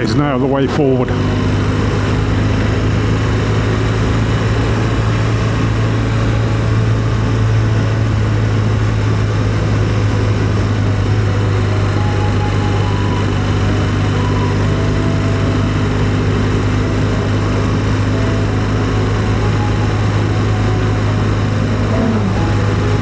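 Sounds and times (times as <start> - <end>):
motorcycle engine cruising: 0.0 - 23.0
road and wind noise: 0.0 - 23.0.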